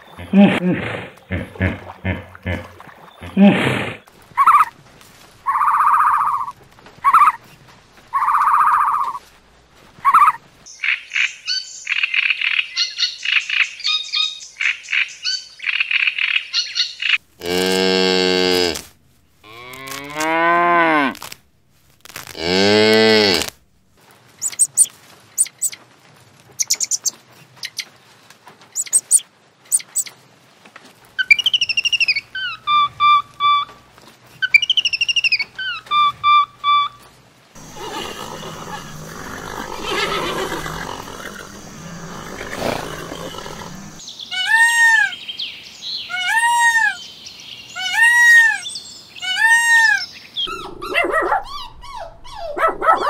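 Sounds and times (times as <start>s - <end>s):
animal calls and chirps: 4.4s - 4.7s, 5.5s - 7.4s, 8.1s - 9.2s, 10.0s - 17.2s, 24.4s - 25.8s, 26.6s - 27.9s, 28.8s - 30.1s, 31.2s - 33.8s, 34.4s - 37.0s, 37.6s - 53.0s
cow mooing: 37.6s - 44.0s.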